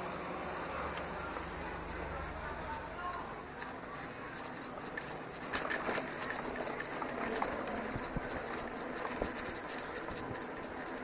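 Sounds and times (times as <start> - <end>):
bicycle clicks and rattles: 3.0 - 11.0
bicycle tyre and wind noise: 3.3 - 11.0.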